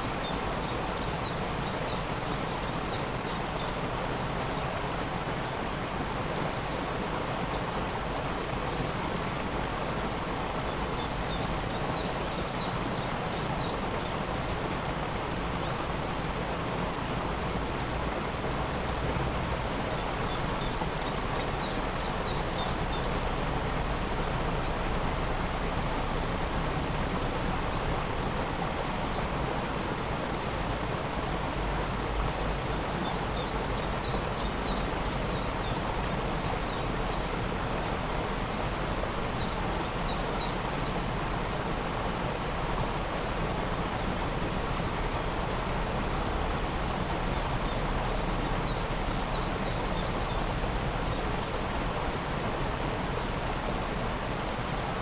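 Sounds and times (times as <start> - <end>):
waterfall rushing: 0.0 - 55.0
small bird singing: 33.0 - 37.2, 47.3 - 51.5.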